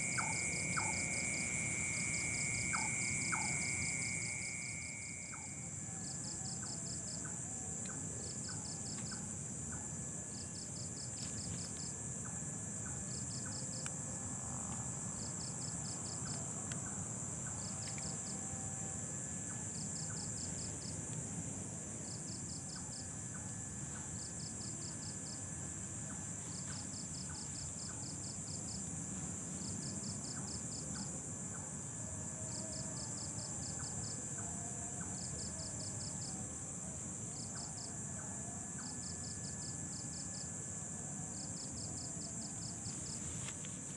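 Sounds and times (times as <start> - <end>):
high-pitched insect drone: 0.0 - 7.4
cricket trills: 0.0 - 43.9
low background noise: 0.0 - 43.9.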